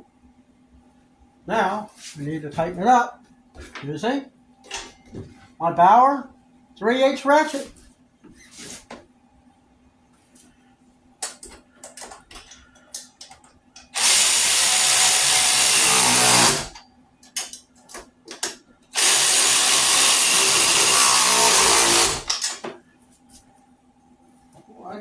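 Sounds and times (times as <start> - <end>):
parts clicking and tapping: 11.2 - 13.9, 17.2 - 18.6
cordless ratchet running: 14.0 - 16.8, 19.0 - 22.4.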